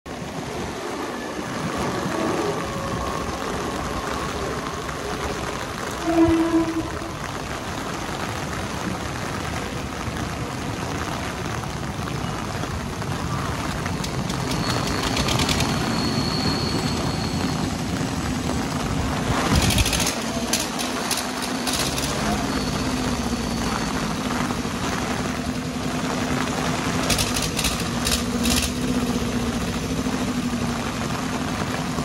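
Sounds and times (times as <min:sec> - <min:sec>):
train rumbling on tracks: 0:00.1 - 0:32.0
rapid wheel clatter: 0:13.8 - 0:16.2, 0:19.3 - 0:22.5, 0:26.7 - 0:29.0.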